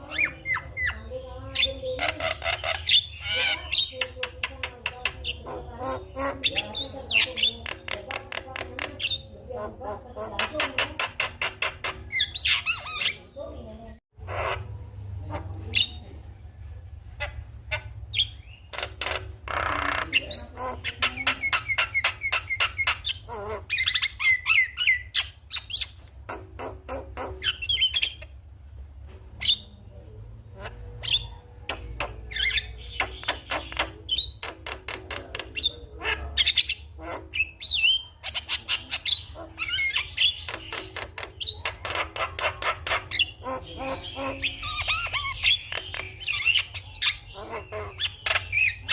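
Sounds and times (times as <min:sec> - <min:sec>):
bird clicking and chirping: 0:01.6 - 0:05.6, 0:06.2 - 0:09.3, 0:10.2 - 0:13.2, 0:18.2 - 0:28.3, 0:31.1 - 0:48.9.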